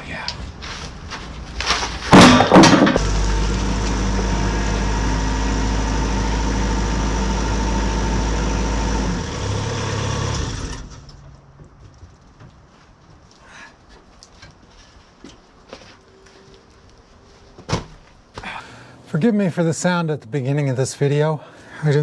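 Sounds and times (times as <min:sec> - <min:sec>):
sawmill engine running: 0:02.2 - 0:11.0.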